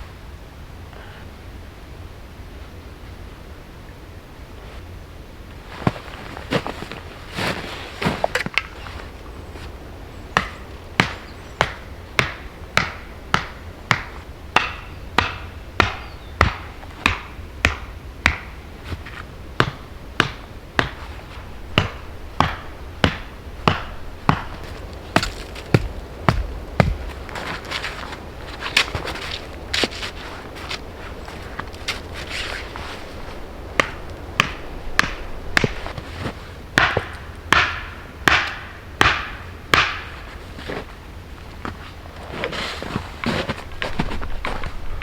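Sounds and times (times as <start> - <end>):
axe chopping wood: 10.4 - 21.0, 21.7 - 27.3, 33.8 - 36.0, 36.8 - 40.2.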